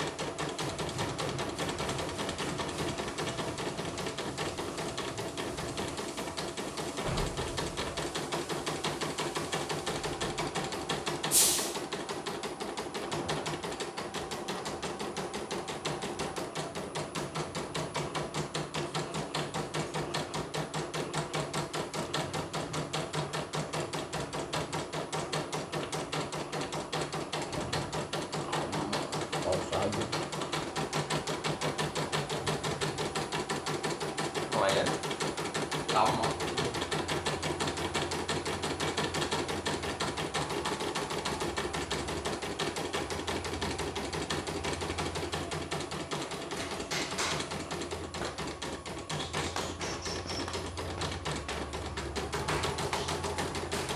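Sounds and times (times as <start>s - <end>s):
embroidery machine stitching: 0.0s - 53.9s
loud hiss: 11.3s - 11.8s.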